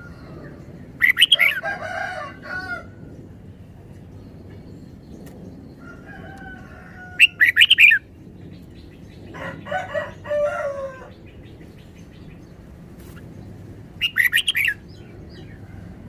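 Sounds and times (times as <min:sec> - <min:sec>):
bird singing rapid notes: 0:00.7 - 0:01.6, 0:07.2 - 0:09.3, 0:11.1 - 0:15.6.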